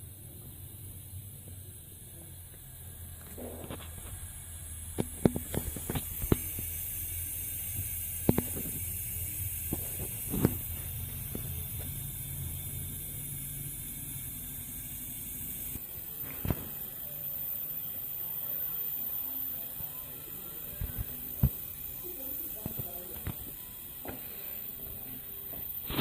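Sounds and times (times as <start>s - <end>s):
high-pitched air hiss: 0.0s - 26.0s
sharp clicks and knocks: 4.9s - 6.8s, 8.2s - 9.0s.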